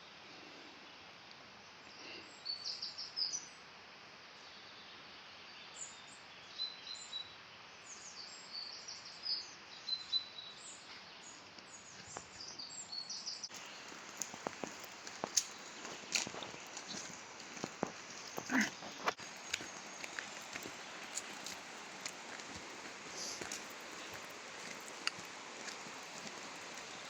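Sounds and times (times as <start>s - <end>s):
small birds chirping: 0.3s - 3.6s, 4.4s - 27.0s
waterfall rushing: 13.6s - 27.0s.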